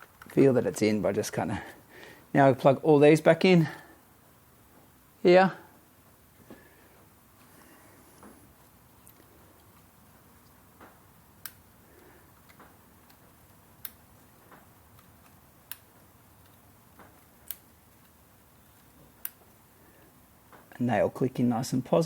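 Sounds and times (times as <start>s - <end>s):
plug connectors clicking: 11.4s - 11.7s, 12.4s - 19.6s.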